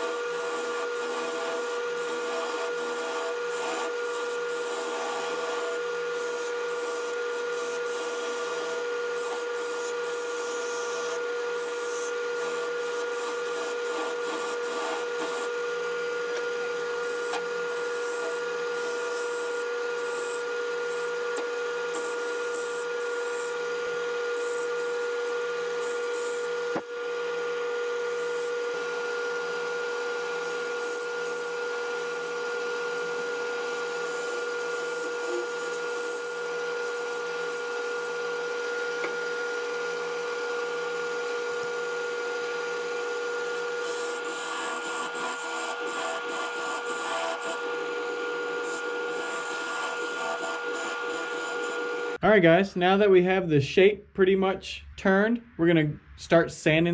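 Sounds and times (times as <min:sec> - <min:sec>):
turning tool scraping wood: 0:00.0 - 0:15.6, 0:16.3 - 0:23.6, 0:43.4 - 0:52.2
wood lathe motor whine: 0:00.0 - 0:52.2.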